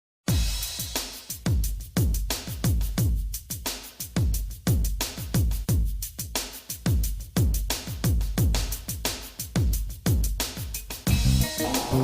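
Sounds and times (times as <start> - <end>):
deep kick drum beating: 6.9 - 9.0, 11.1 - 12.0
background music: 11.1 - 12.0.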